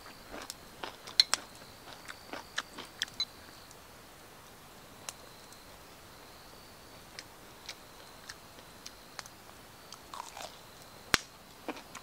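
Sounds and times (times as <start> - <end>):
person chewing crunchy food: 0.0 - 3.3, 9.9 - 10.6, 11.6 - 12.0.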